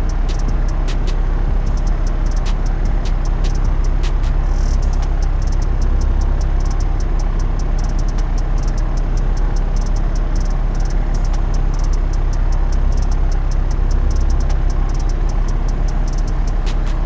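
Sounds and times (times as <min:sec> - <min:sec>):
faint high ticking: 0:00.0 - 0:17.0
propeller plane engine running: 0:00.0 - 0:17.0.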